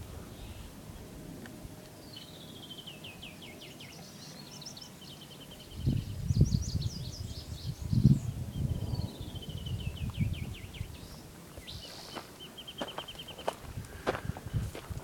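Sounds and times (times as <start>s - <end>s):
songbirds singing: 0.0s - 15.0s
wind rumbling on microphone: 5.5s - 12.0s, 12.8s - 15.0s.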